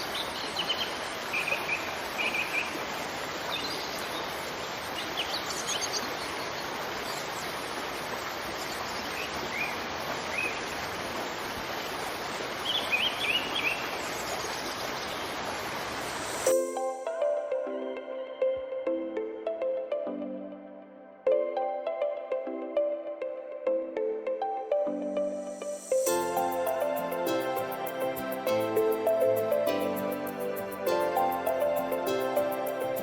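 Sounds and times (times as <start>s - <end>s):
rush of falling water: 0.0s - 16.8s, 25.6s - 33.0s.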